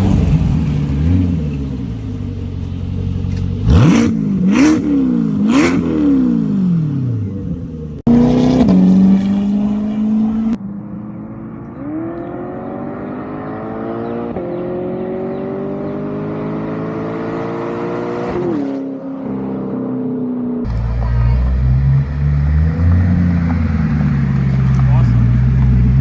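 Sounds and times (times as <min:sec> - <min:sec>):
car engine revving and idling: 0:00.0 - 0:18.4, 0:20.7 - 0:26.0.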